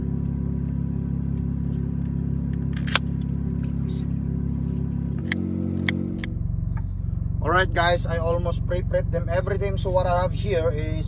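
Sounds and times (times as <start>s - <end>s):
truck engine idling: 0.0s - 11.0s
sharp click: 5.2s - 6.9s.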